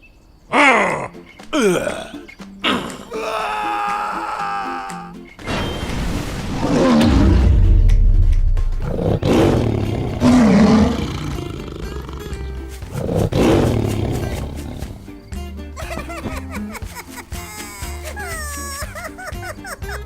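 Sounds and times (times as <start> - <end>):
background music: 0.4 - 20.0
tiger roaring: 6.5 - 15.1.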